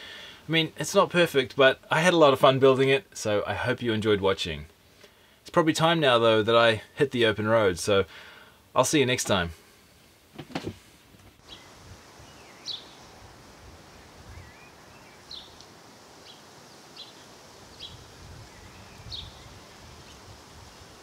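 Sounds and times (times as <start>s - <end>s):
bird chirps: 11.4s - 13.2s, 14.0s - 15.6s, 17.0s - 20.2s.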